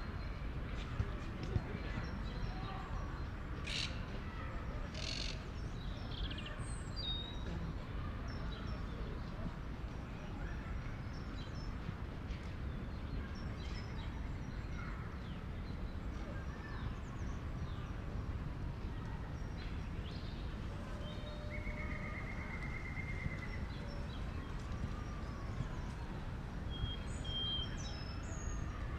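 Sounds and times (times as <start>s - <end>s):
distant city traffic rumble: 15.5s - 28.9s.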